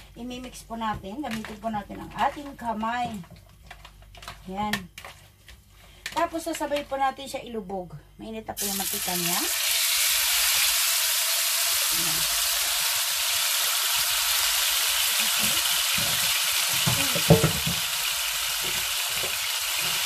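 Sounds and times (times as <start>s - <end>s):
meat sizzling in oil: 8.6s - 20.0s.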